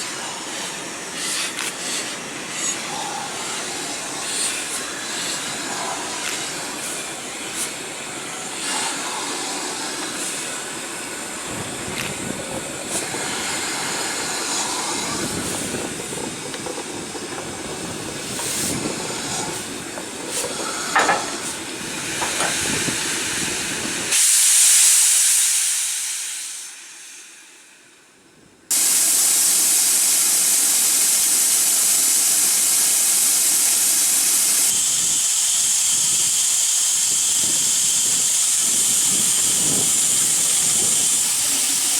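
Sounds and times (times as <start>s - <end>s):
steam locomotive hissing: 0.0s - 41.9s
clatter and knocks: 20.0s - 21.6s.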